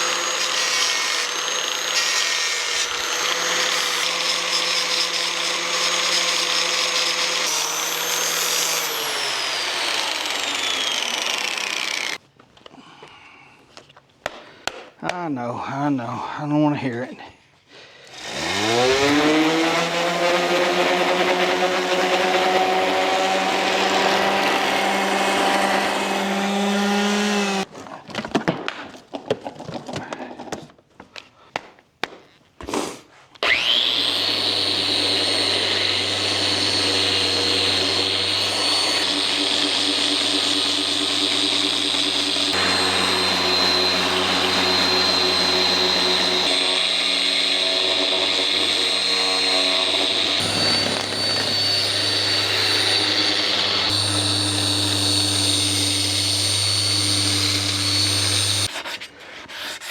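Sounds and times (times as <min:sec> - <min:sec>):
power grinder grinding metal: 0:00.0 - 0:12.2, 0:18.1 - 0:27.7, 0:33.4 - 0:58.7.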